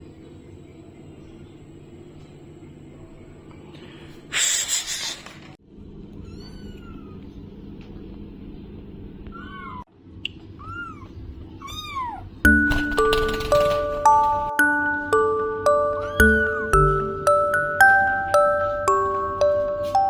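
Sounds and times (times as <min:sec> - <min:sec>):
kitten meowing: 0:06.2 - 0:07.3, 0:09.3 - 0:09.8, 0:10.6 - 0:12.4.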